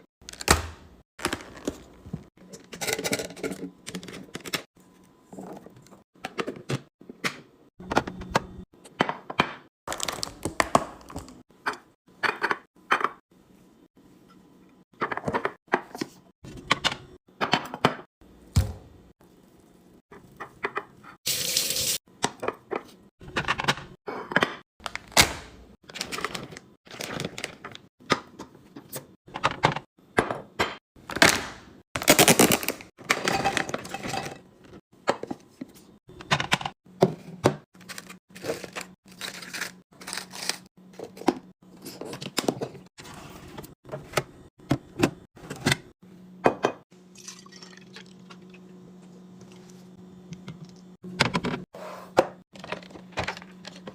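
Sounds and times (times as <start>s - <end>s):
liquid being poured: 47.1s - 48.5s.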